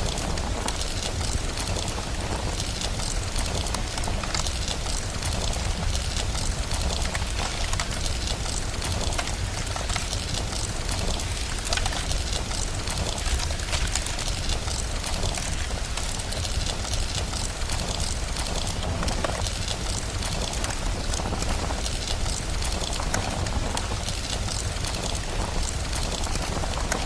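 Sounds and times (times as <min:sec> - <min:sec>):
fire crackling: 0:00.0 - 0:27.0
steady rain: 0:00.0 - 0:27.0.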